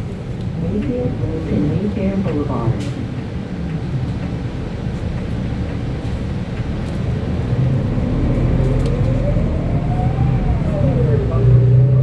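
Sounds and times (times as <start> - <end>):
bus engine rumble: 0.0 - 12.0
rising engine whine: 5.8 - 12.0.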